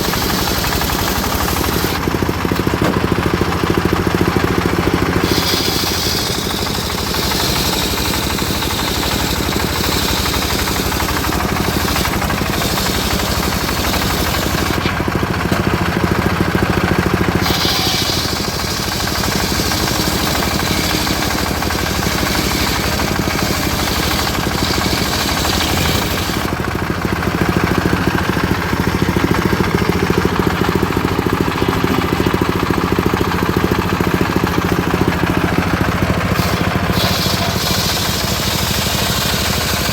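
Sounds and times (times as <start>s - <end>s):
saw blade ripping wood: 0.0s - 15.8s, 17.0s - 26.7s, 36.2s - 39.9s
sawmill engine running: 0.0s - 39.9s.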